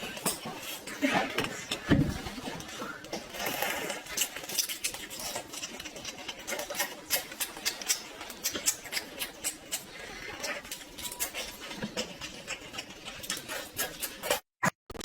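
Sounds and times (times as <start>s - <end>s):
crisp crunching and chewing: 2.6s - 14.4s.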